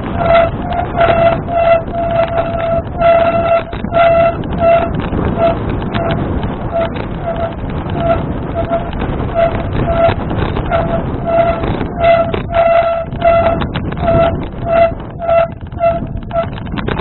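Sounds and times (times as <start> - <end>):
bicycle squeaking: 0.0 - 17.0
wind and road noise: 0.0 - 17.0.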